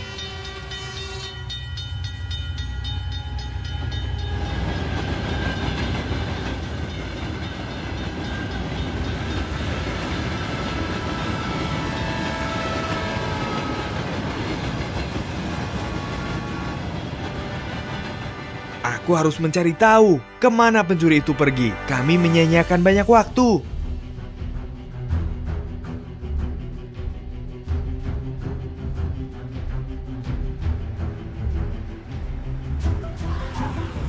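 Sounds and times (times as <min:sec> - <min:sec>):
train cars clattering by: 0:00.0 - 0:19.5
low train rumble: 0:00.0 - 0:34.0.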